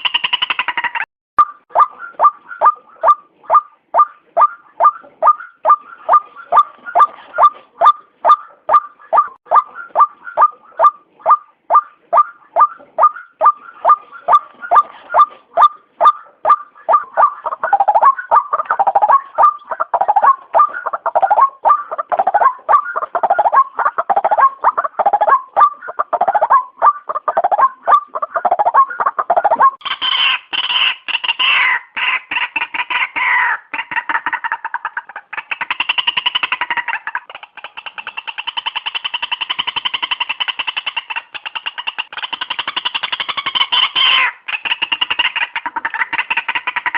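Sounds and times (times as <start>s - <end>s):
bird calling sharp repeated note: 1.4s - 23.7s.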